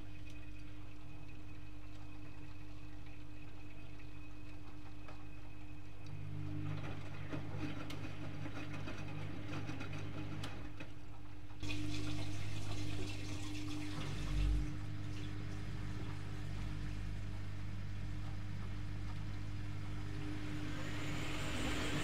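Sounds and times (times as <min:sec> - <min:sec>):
washing machine electric hum: 0:00.0 - 0:22.0
water moving in washing machine: 0:00.0 - 0:22.0.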